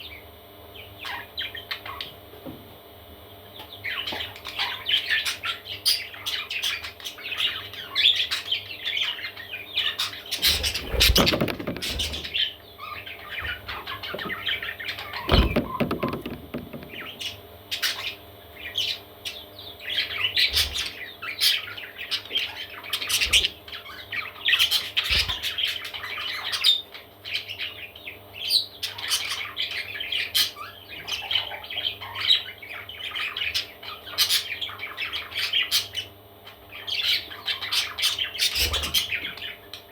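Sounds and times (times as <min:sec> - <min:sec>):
parrot chicks chirping and squawking: 0:00.0 - 0:02.4, 0:03.1 - 0:39.9
low bumps: 0:15.3 - 0:17.2.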